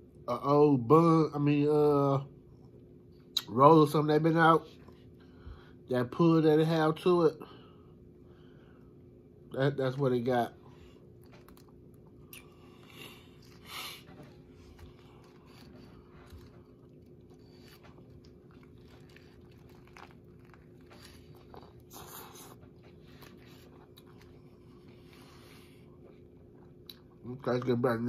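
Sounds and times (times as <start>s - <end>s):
faint steady hum: 0.0s - 28.0s
person chewing food: 10.7s - 27.2s.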